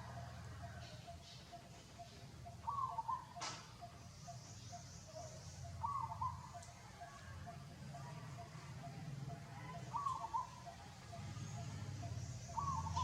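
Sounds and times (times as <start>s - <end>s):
bird calling: 0.0s - 13.0s.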